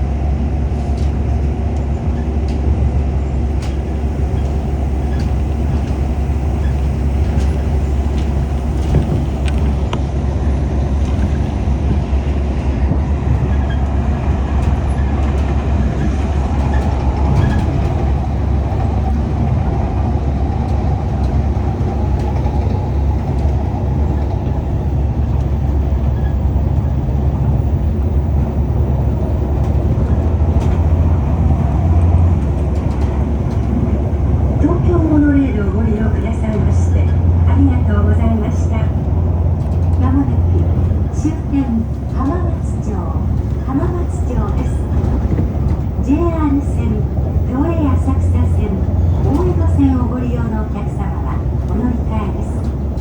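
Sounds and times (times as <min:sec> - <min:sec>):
monorail train rumbling: 0:00.0 - 0:53.0.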